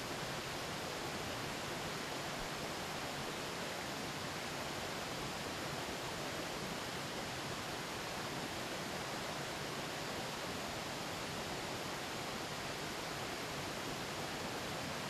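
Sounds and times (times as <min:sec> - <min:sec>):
stream flowing over rocks: 0:00.0 - 0:15.0.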